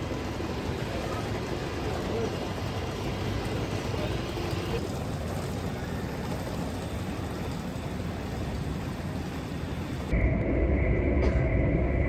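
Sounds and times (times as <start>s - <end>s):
train rumble and hiss: 0.0s - 12.0s
high whine: 9.4s - 12.0s.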